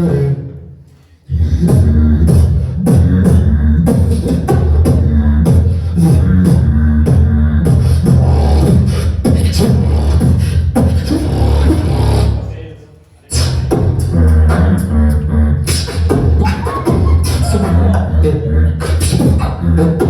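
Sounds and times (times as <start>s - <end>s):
beatboxing: 0.0s - 12.6s, 13.2s - 20.0s.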